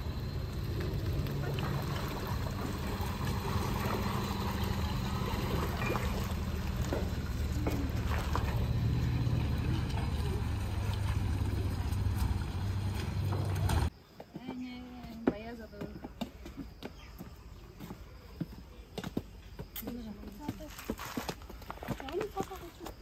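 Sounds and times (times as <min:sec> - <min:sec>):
car engine running at low speed: 0:00.0 - 0:13.9
tyres sloshing through water: 0:00.0 - 0:13.9.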